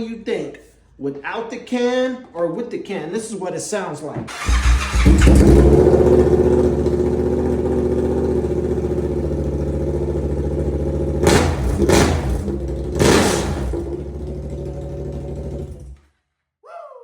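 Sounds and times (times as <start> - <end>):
engine revving blips: 4.3 - 9.7, 10.6 - 16.0
motorcycle engine idling loudly: 4.3 - 16.0.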